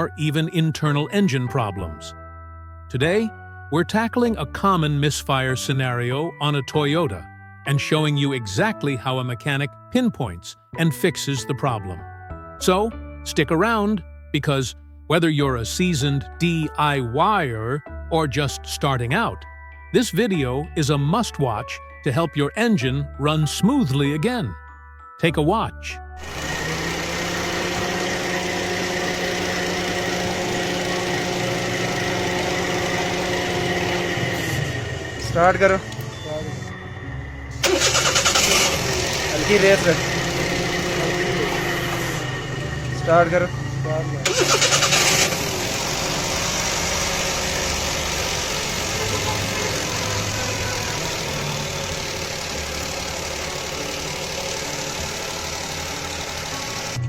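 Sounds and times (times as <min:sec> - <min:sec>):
car engine idling: 0:26.2 - 0:57.0.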